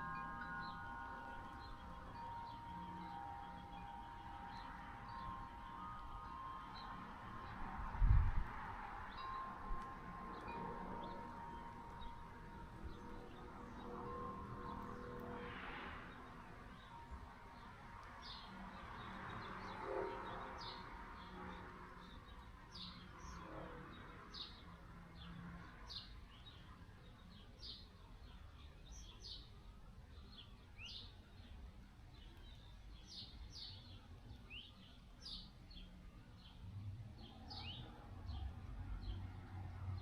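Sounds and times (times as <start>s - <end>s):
small birds chirping: 16.2s - 40.0s.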